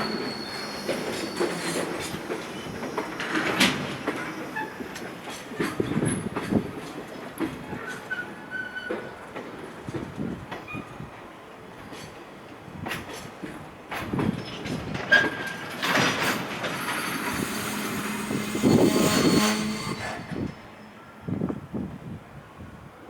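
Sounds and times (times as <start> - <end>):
high wheel squeals: 0.0 - 5.0, 15.1 - 21.6.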